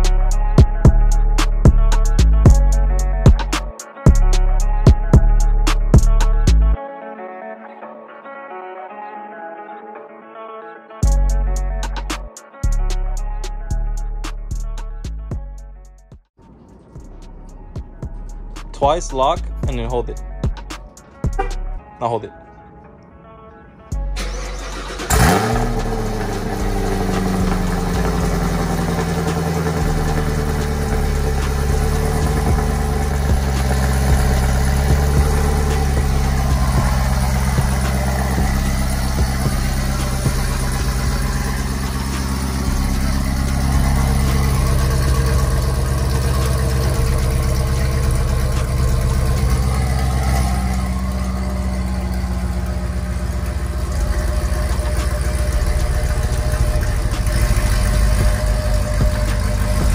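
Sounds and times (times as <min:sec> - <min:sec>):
car engine idling: 0:16.4 - 0:21.8, 0:24.0 - 0:59.9.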